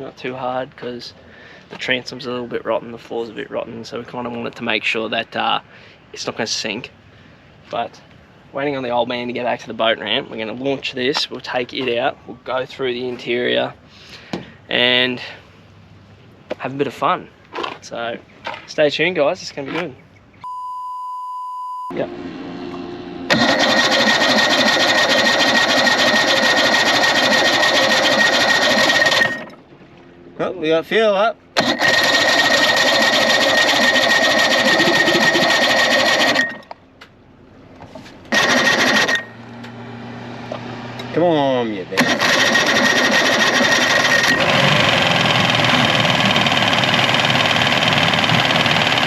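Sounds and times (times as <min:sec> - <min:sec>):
thin high whine: 0:21.9 - 0:23.7
motor high whine: 0:21.9 - 0:36.8, 0:37.4 - 0:41.4, 0:42.0 - 0:49.0.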